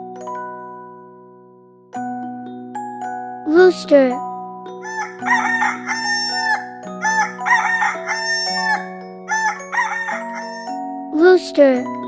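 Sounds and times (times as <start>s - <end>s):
rooster crowing: 4.8s - 10.8s.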